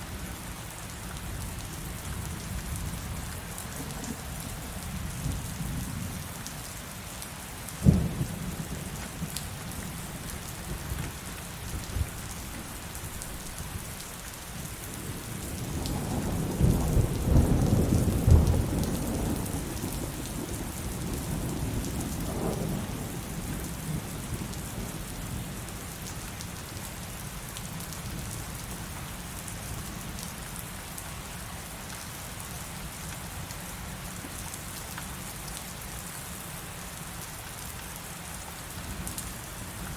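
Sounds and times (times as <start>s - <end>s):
heavy rain falling: 0.0s - 39.9s
sharp thunderclap: 7.8s - 8.7s
rolling rumble of thunder: 7.8s - 13.8s, 14.9s - 25.0s.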